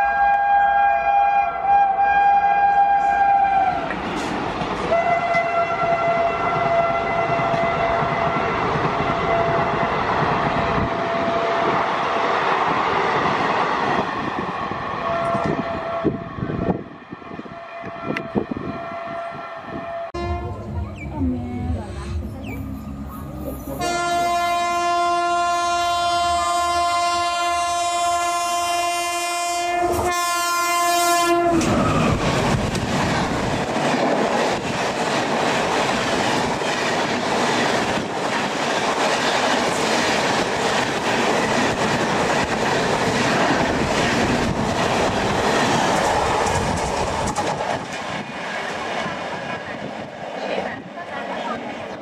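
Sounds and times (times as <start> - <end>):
locomotive horn blast: 0.0 - 3.8, 4.9 - 9.8, 15.0 - 16.5, 17.4 - 22.2, 23.7 - 31.8
train rushing past: 1.4 - 52.0.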